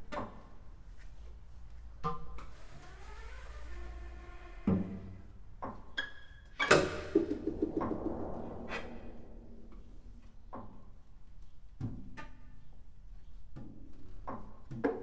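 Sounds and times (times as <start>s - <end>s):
held low note: 6.8s - 10.6s.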